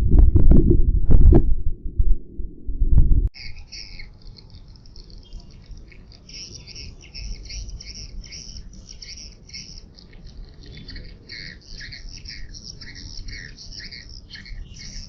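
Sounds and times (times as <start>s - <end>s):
low rumble: 0.0s - 3.3s
swiftlet twittering chirps: 3.4s - 15.0s.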